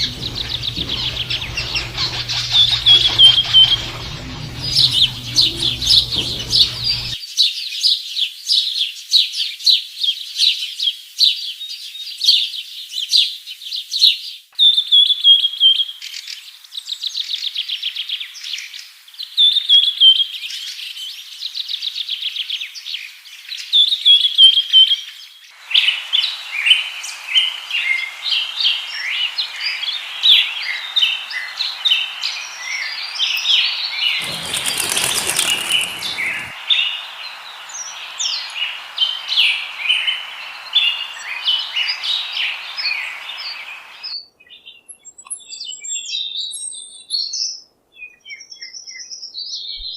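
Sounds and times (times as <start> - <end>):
small birds chirping and trilling: 0.0 - 7.2, 27.5 - 45.0.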